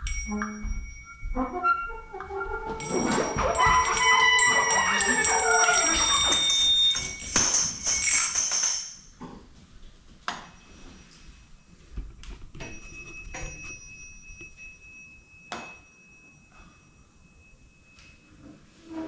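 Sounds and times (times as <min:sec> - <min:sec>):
small bell ringing: 0:00.0 - 0:01.4, 0:02.8 - 0:09.2, 0:12.6 - 0:18.4.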